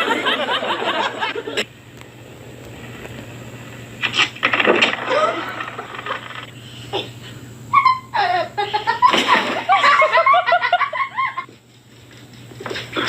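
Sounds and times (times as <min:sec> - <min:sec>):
person laughing: 0:07.8 - 0:11.5.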